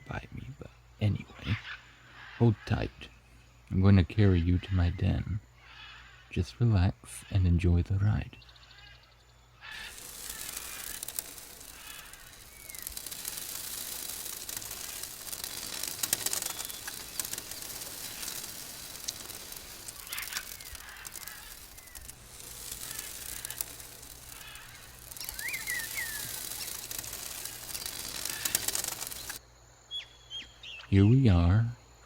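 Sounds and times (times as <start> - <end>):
dense jungle hiss: 0.0 - 32.0
birds chirping: 7.1 - 31.6
rustling: 9.7 - 29.4.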